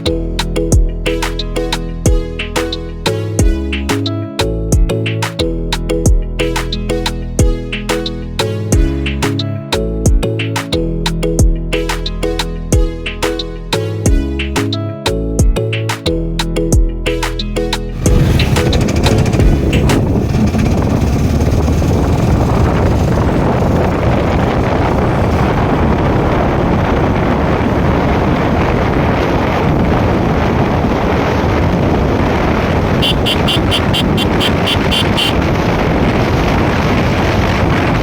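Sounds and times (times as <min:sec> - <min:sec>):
motorcycle engine: 0:18.0 - 0:28.8, 0:32.4 - 0:36.5
wind rush on microphone: 0:18.0 - 0:38.0
short high beeps: 0:33.0 - 0:35.4.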